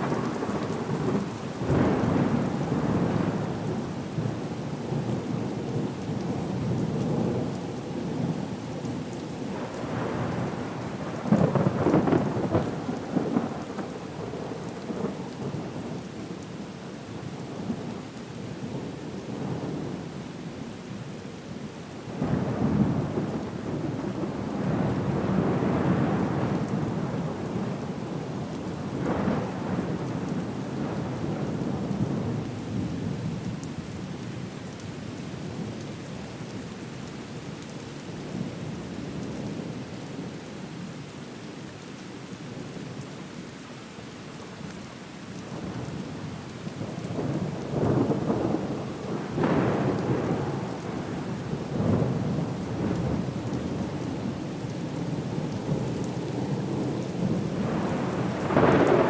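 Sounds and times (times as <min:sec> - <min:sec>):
steady rain: 0:00.0 - 0:59.0
rolling thunder: 0:46.8 - 0:54.2, 0:55.0 - 0:59.0.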